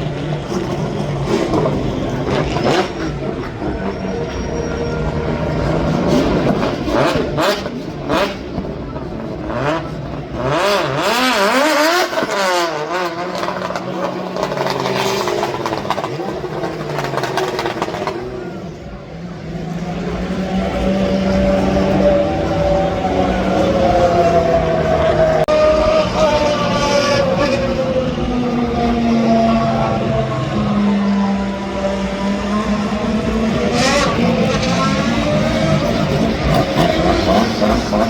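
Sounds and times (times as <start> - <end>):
car engines at full throttle: 0.0 - 38.0.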